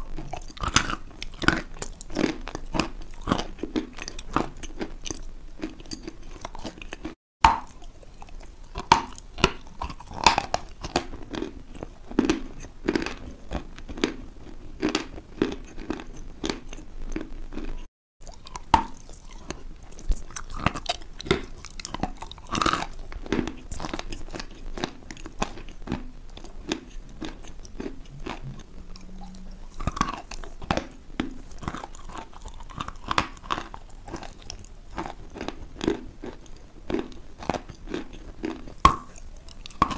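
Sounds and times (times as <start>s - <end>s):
crunchy food chewing: 0.0s - 39.9s.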